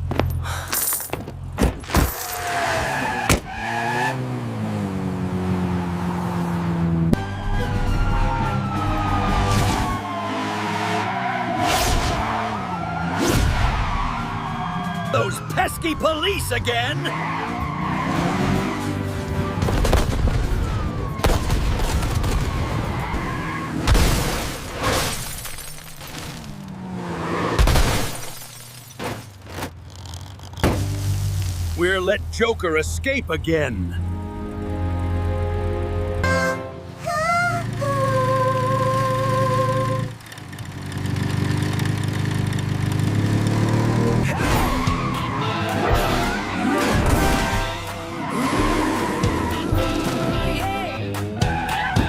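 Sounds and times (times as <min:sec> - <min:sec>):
car engine: 0:00.0 - 0:52.0
tires skidding: 0:02.1 - 0:32.0, 0:38.8 - 0:52.0
car engine revving: 0:08.4 - 0:14.6, 0:16.4 - 0:21.2, 0:37.5 - 0:52.0
action music: 0:44.7 - 0:52.0.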